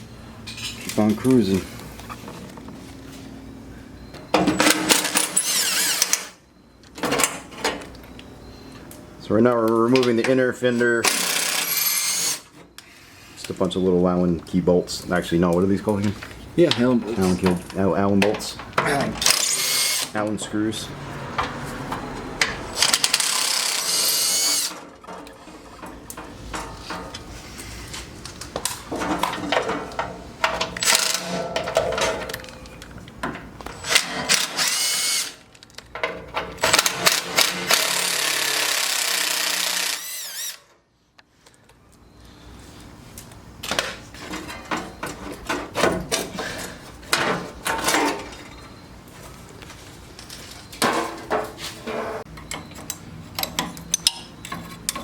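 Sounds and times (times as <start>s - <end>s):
air-powered driver whine: 2.8s - 6.4s, 11.0s - 13.4s, 19.2s - 20.6s, 21.4s - 24.8s, 33.6s - 35.4s, 36.6s - 40.8s
bolts and parts clinking: 28.2s - 38.2s, 43.6s - 48.8s, 52.3s - 55.0s.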